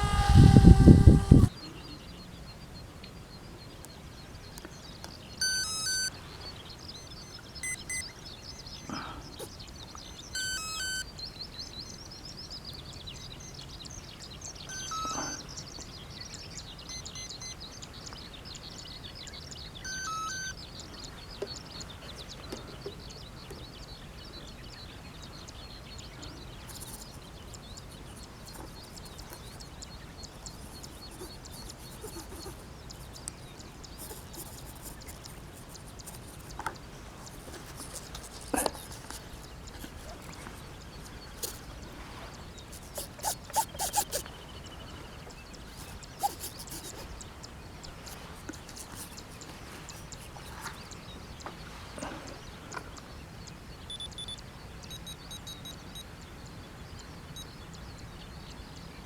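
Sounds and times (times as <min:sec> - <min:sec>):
birds chirping: 0:00.0 - 0:59.0
high trilling: 0:05.4 - 0:06.1, 0:10.4 - 0:11.0, 0:14.7 - 0:15.4.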